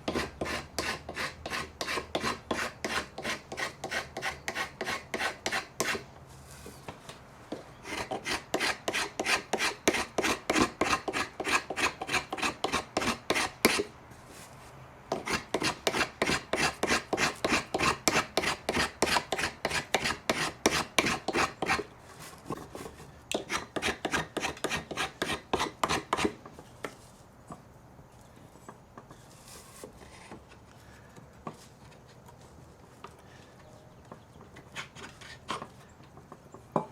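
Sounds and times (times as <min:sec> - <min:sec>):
hand file strokes: 0:00.0 - 0:06.9, 0:07.8 - 0:27.2
faint scraping: 0:28.2 - 0:32.7.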